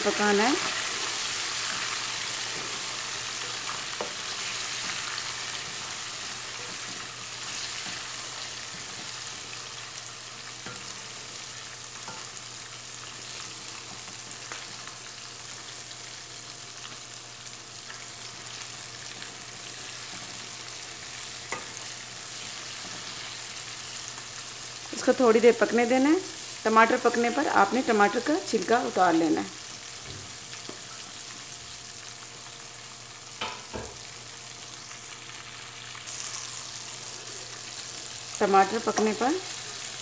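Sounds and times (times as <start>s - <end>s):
vegetables sizzling in hot oil: 0.0s - 40.0s.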